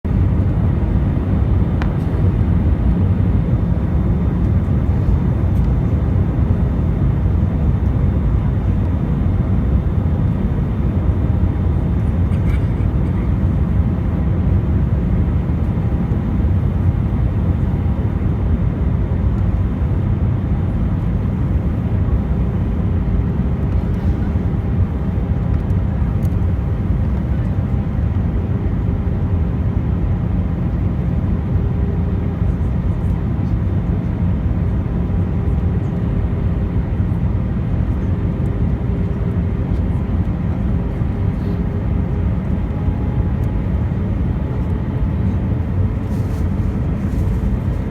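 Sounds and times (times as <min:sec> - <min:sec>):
airplane engine and airflow rumble: 0:00.0 - 0:47.9
faint steady hum: 0:00.1 - 0:28.4, 0:38.0 - 0:47.9.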